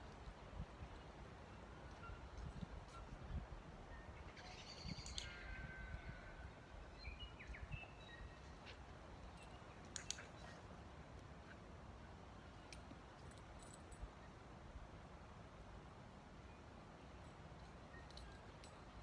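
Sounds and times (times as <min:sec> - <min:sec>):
wind rumble on microphone: 0:02.0 - 0:08.3.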